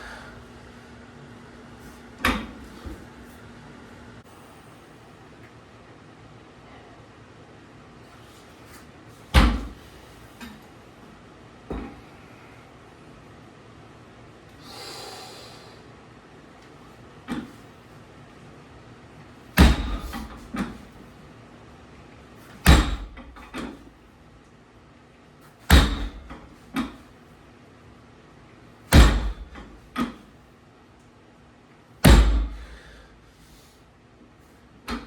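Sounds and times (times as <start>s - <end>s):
weight plates thudding on floor: 9.3s - 9.9s, 19.6s - 21.0s, 22.6s - 23.8s, 25.7s - 27.0s, 28.9s - 30.2s, 32.0s - 32.9s.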